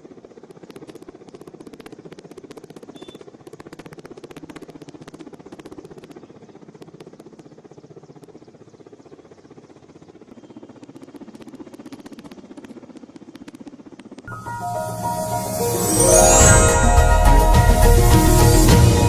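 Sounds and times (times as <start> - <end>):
helicopter rotor chopping: 0.0 - 14.3.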